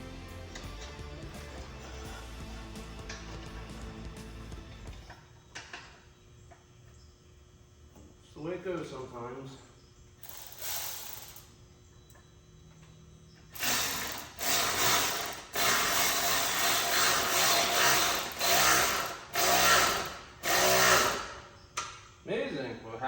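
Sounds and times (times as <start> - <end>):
tool grinding car part: 10.2 - 11.4, 13.6 - 21.4.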